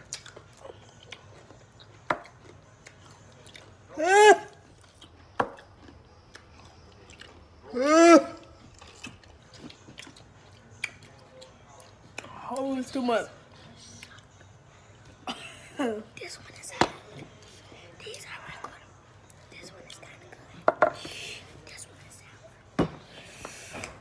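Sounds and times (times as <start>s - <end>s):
pickles being chewed: 0.0s - 7.8s, 8.4s - 12.8s.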